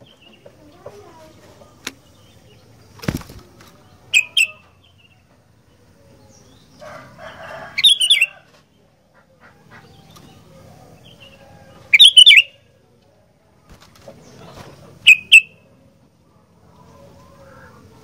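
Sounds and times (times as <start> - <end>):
bird wings fluttering: 2.9 - 3.8, 13.7 - 14.8.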